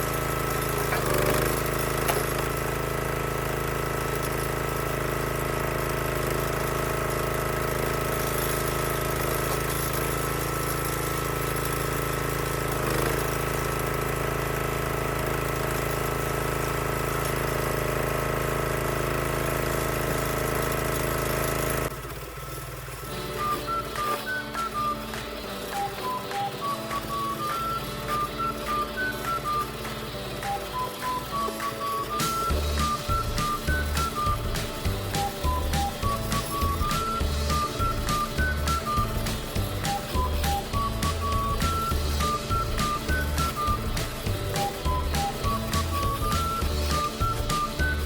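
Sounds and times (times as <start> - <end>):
small gas engine running: 0.0 - 48.0
music: 23.0 - 48.0.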